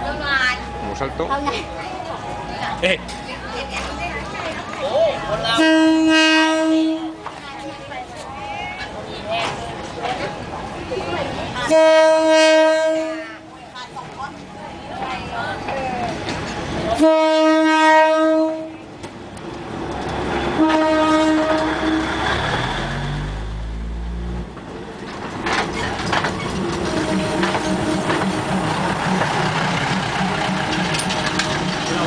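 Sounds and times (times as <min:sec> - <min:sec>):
train engine rumble: 0:00.0 - 0:32.0
train horn blasts: 0:05.5 - 0:07.2, 0:11.7 - 0:13.5, 0:17.0 - 0:18.8, 0:20.6 - 0:22.3, 0:26.8 - 0:28.6
train wheels clacking on rails: 0:24.5 - 0:32.0.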